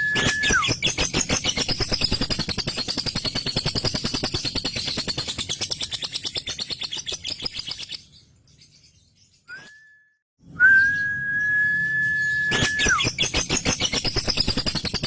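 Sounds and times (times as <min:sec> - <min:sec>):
steady high whistle: 0:00.0 - 0:00.8, 0:09.5 - 0:13.1.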